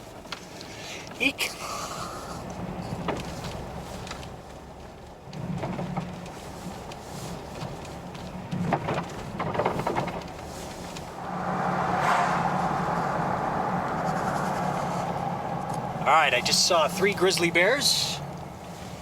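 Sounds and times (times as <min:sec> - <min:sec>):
car engine and road hum: 0:00.0 - 0:19.0
rush of noise: 0:11.1 - 0:17.0.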